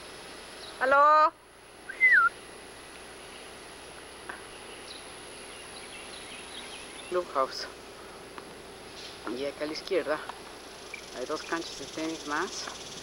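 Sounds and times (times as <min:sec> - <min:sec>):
outdoor background hiss: 0:00.0 - 0:13.0
whistled bird call: 0:01.9 - 0:02.4.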